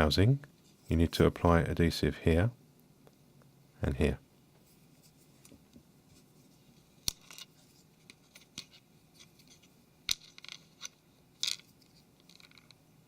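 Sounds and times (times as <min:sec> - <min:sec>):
light scratches: 0:04.6 - 0:09.8.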